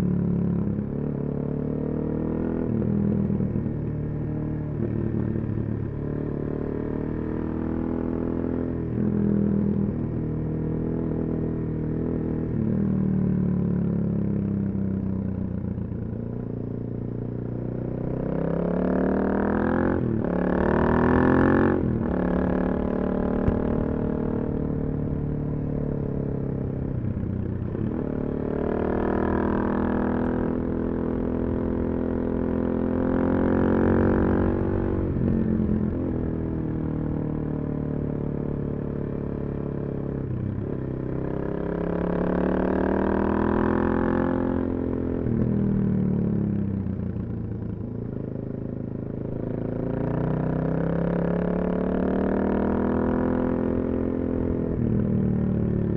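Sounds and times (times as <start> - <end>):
motorcycle engine revving: 17.2 - 55.9.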